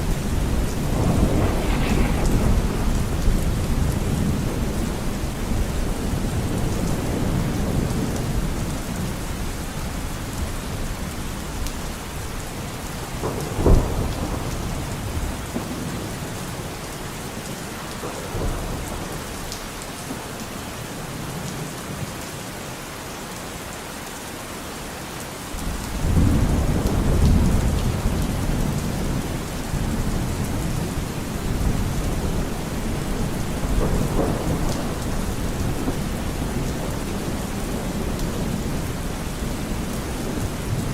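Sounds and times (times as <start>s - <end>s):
sharp thunderclap: 0.0s - 7.8s, 13.1s - 16.1s, 29.8s - 38.8s
rolling thunder: 0.0s - 9.2s, 13.0s - 20.2s, 25.6s - 40.9s
steady rain: 0.0s - 40.9s.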